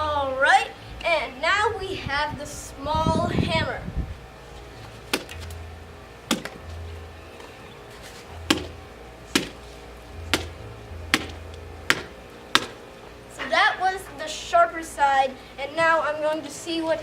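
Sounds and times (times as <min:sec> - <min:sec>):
hammer whacking a watermelon: 0:05.1 - 0:05.5, 0:06.3 - 0:06.6, 0:08.5 - 0:09.6, 0:10.3 - 0:12.8.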